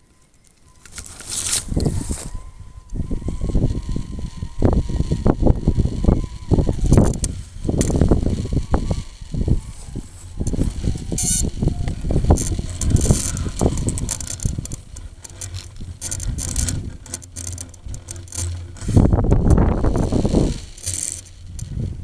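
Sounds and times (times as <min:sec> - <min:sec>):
wind buffeting microphone: 0:01.0 - 0:22.0
light clicks and rattles: 0:05.8 - 0:22.0.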